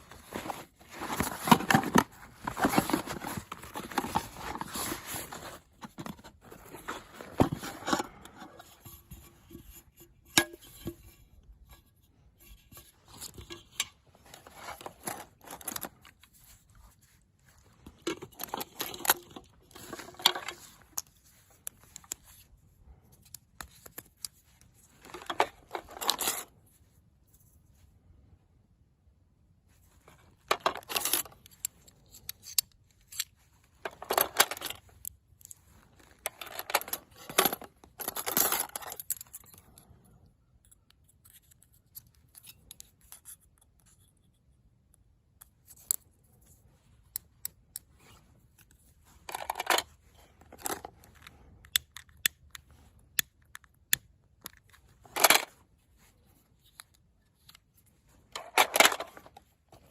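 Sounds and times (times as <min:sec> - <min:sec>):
handling scrapes: 0:00.0 - 0:27.9.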